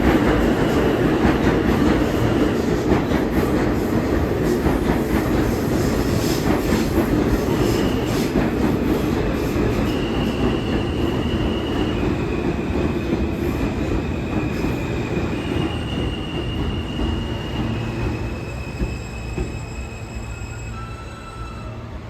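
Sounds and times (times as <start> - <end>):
subway train rumble: 0.0 - 22.0
train wheels squealing: 5.1 - 22.0.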